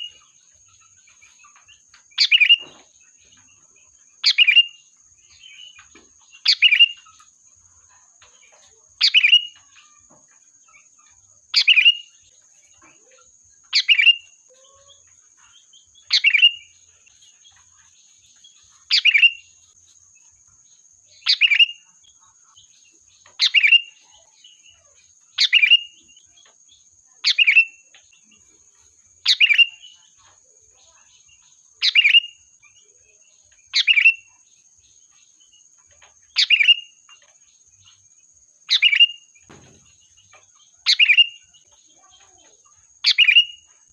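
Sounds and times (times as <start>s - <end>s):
bulbul calling: 2.2s - 2.8s, 4.2s - 7.1s, 36.3s - 36.9s, 38.7s - 43.6s.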